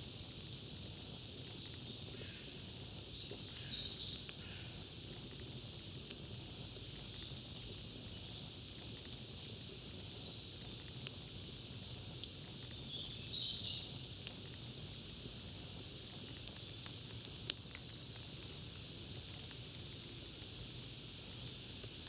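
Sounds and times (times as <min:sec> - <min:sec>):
campfire crackling: 0:00.0 - 0:22.0.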